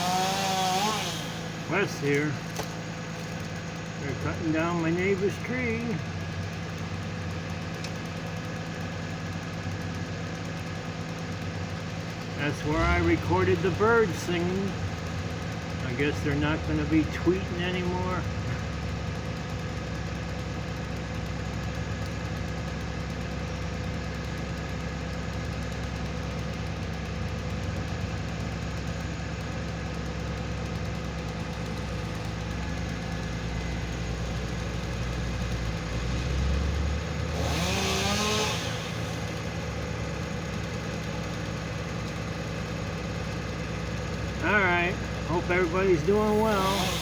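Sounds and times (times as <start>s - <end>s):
machinery engine humming: 0.0s - 21.1s, 26.8s - 47.0s.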